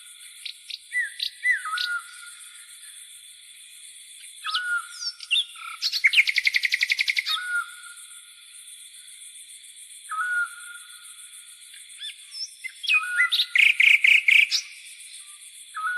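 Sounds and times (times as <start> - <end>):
songbird whistled notes: 0.0 - 2.4, 4.4 - 7.9, 10.1 - 10.9, 12.0 - 15.9
insects chirring: 0.0 - 15.9.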